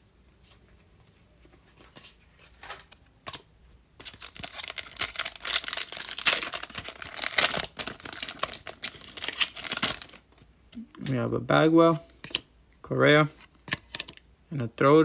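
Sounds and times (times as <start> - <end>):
wrapper tearing and crinkling: 4.0 - 10.3.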